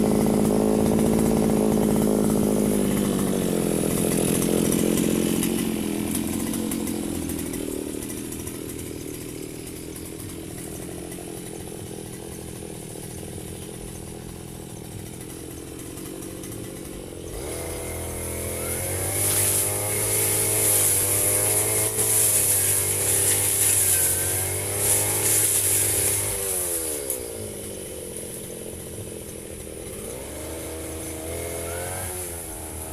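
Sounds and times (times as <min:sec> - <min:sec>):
brush cutter engine running: 0:00.0 - 0:32.9.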